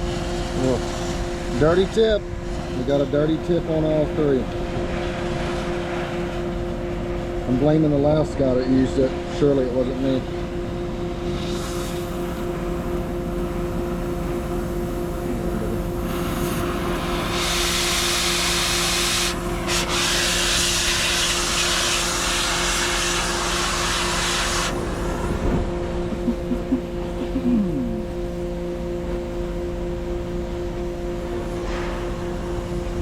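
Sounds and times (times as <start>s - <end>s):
steady machine hum: 0.0s - 33.0s
cutting torch hissing: 15.6s - 25.6s.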